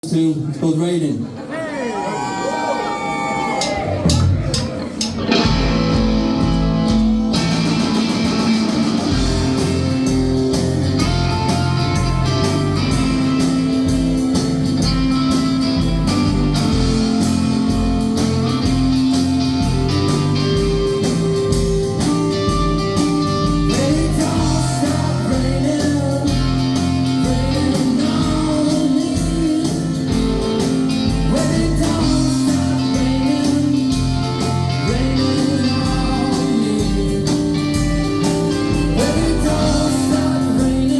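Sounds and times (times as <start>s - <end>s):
live rock band playing: 2.1s - 40.9s
person singing: 23.4s - 40.9s.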